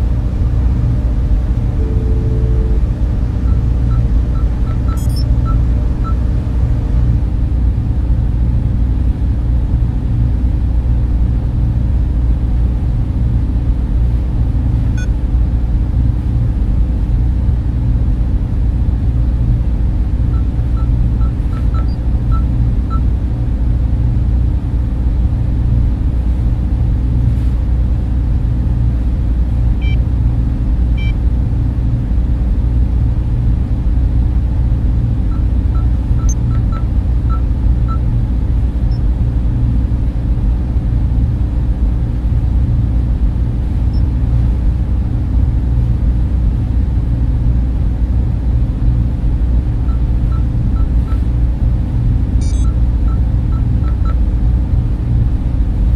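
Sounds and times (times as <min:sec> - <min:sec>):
server cooling fans humming: 0:00.0 - 0:55.9
faint short blips: 0:01.8 - 0:05.6, 0:52.4 - 0:54.2.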